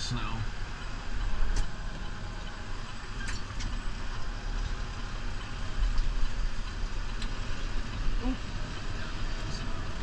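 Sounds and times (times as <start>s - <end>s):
tractor diesel engine rumbling: 0.0s - 10.0s.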